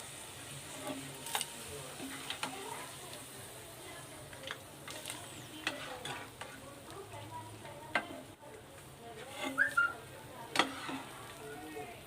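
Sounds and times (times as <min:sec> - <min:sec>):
food sizzling in hot oil: 0:00.0 - 0:12.0
metal spoon clinking on pan: 0:10.5 - 0:11.1.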